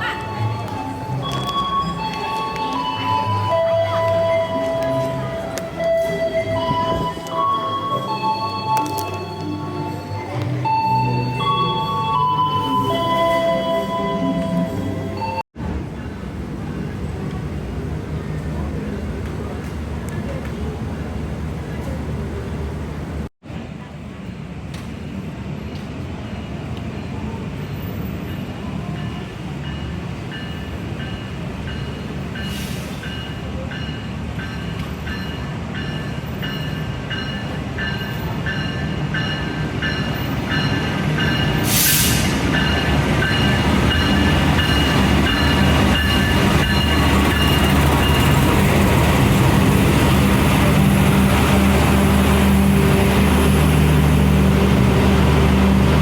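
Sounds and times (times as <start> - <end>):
train rumble: 0.0 - 56.0.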